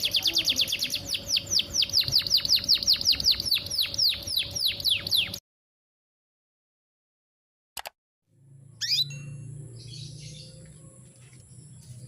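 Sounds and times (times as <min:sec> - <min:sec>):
canary chirping: 0:00.0 - 0:05.4, 0:08.8 - 0:12.0.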